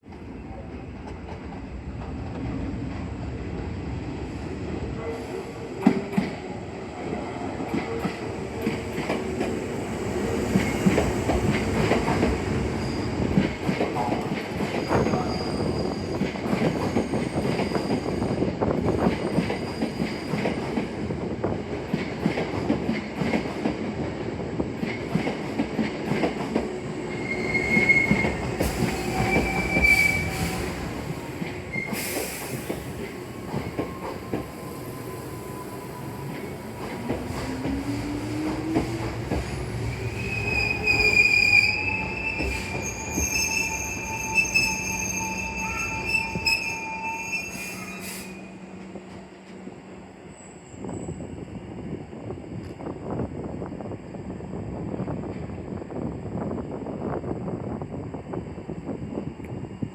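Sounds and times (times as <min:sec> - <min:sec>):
train wheel squeals: 0:11.8 - 0:20.8, 0:27.1 - 0:37.8, 0:38.4 - 0:48.8.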